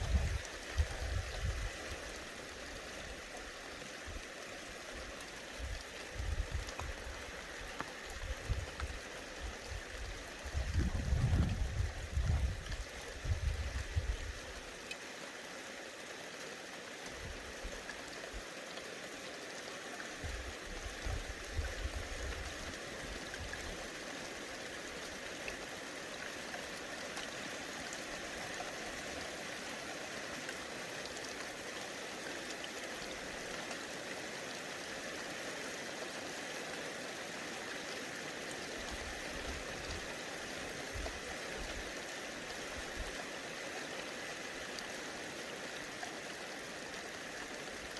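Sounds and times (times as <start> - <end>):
wind buffeting microphone: 0.0 - 1.7, 5.6 - 7.1, 9.7 - 14.3
steady outdoor hiss: 0.0 - 47.9.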